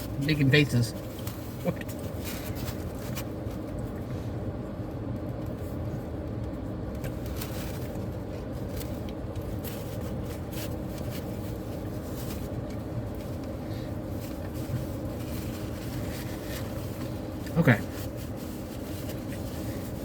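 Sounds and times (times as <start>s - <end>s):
faint rustles and clicks: 0.0s - 20.0s
low mechanical hum: 0.0s - 20.0s.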